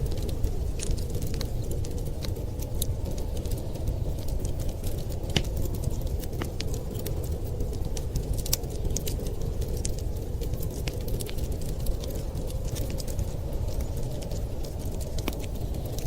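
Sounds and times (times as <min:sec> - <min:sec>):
fire low rumble: 0:00.0 - 0:16.0
wood fire crackling and popping: 0:00.0 - 0:16.0.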